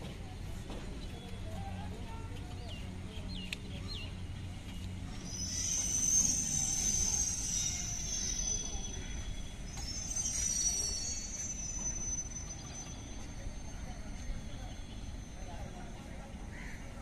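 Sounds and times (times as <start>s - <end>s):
train approaching low rumble: 0.0s - 17.0s
high-pitched wheel squeal: 5.1s - 15.8s.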